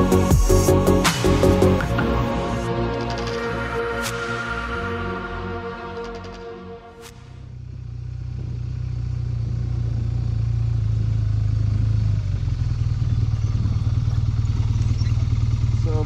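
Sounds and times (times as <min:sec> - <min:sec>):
motorcycle engine at low revs: 0:07.1 - 0:16.0.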